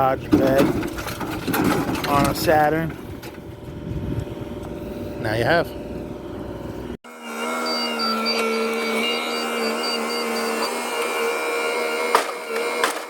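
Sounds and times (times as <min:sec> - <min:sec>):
motor whining: 0:02.3 - 0:13.0
fast high pulsing: 0:03.4 - 0:12.9.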